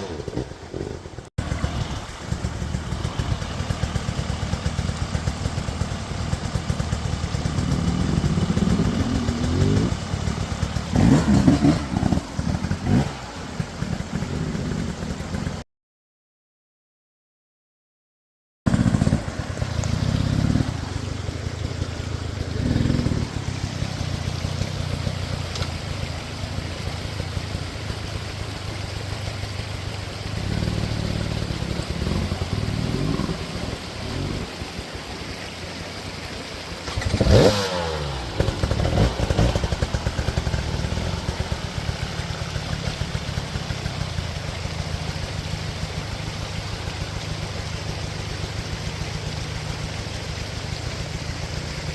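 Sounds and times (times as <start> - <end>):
dirt bike engine revving: 7.4 - 15.0, 18.7 - 25.2, 30.4 - 34.8, 36.8 - 41.6.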